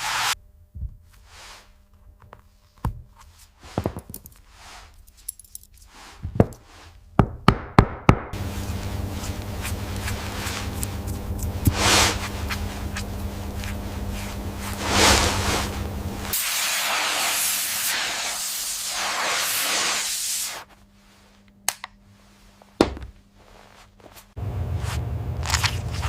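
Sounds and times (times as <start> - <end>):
small metallic clinks and knocks: 5.0 - 5.9
steady machine hum: 8.4 - 16.4, 24.4 - 26.0.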